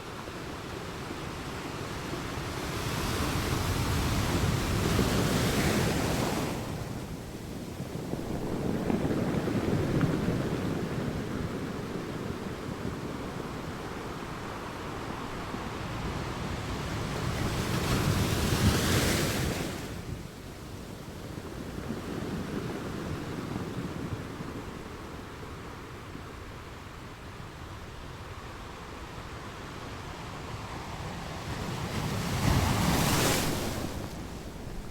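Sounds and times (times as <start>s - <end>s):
sea waves breaking on shore: 30.3s - 34.9s
large wave crashing: 31.7s - 34.9s.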